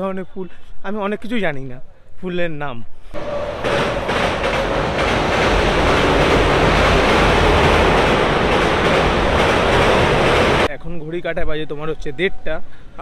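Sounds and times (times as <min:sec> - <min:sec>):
train rumbling on rails: 0:03.2 - 0:10.8.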